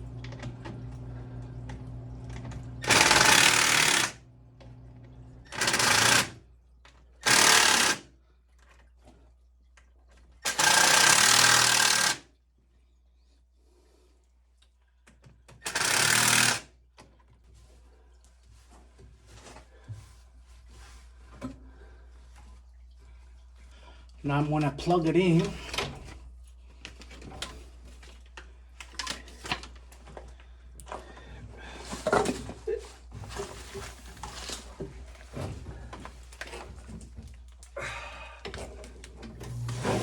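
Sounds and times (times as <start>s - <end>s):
power drill bursts: 2.8s - 4.2s, 5.5s - 6.4s, 7.2s - 8.1s, 10.4s - 12.2s, 15.6s - 16.7s.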